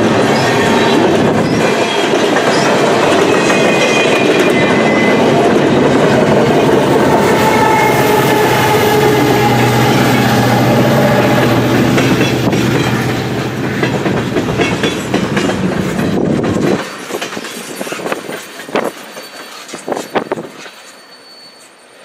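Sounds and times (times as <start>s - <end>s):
wheels clacking over rail joints: 0.0s - 20.8s
heavy train rumble: 0.0s - 21.0s.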